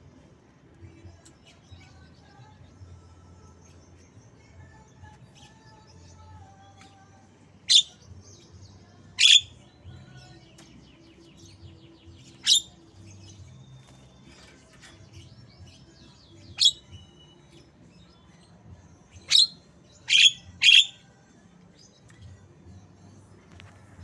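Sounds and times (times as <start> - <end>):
bird loud sharp calls: 19.3 - 21.0
bird chattering trills: 19.4 - 21.0.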